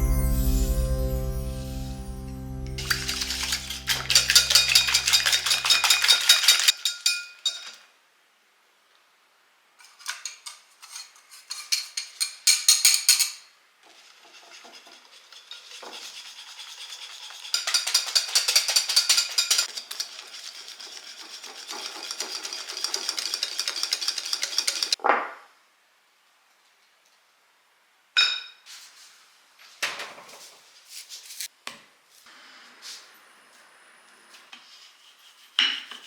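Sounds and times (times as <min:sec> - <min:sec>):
whisk beating in a bowl: 0:02.8 - 0:06.8, 0:14.3 - 0:25.0
soft scraping stirs: 0:02.8 - 0:07.0, 0:13.8 - 0:25.0.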